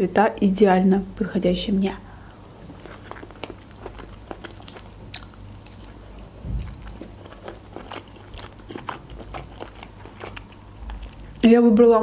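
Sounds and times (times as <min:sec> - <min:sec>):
mouth chewing: 0:02.4 - 0:11.4
low thump: 0:06.4 - 0:06.8.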